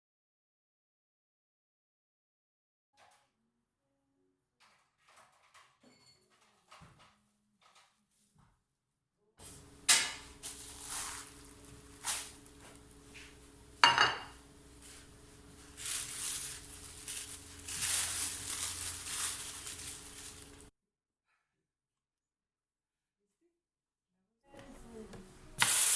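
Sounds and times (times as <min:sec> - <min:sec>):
dishes and utensils clinking: 0:09.4 - 0:11.3, 0:13.8 - 0:14.4
scraping and rustling: 0:09.4 - 0:13.6, 0:14.3 - 0:20.7
steady low hum: 0:09.4 - 0:20.7.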